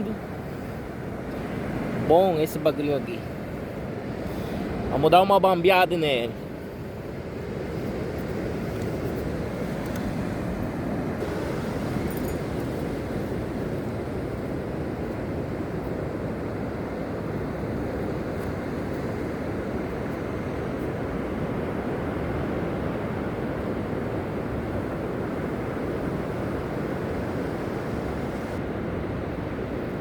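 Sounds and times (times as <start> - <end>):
sea surf washing: 0.0 - 30.0
wind buffeting microphone: 6.4 - 30.0.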